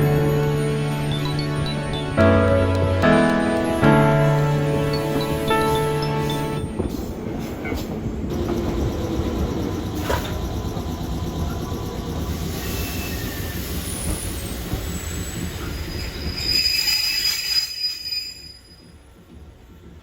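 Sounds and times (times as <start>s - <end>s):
train rumbling on rails: 0.0s - 20.0s
train wheels squealing: 7.7s - 19.2s.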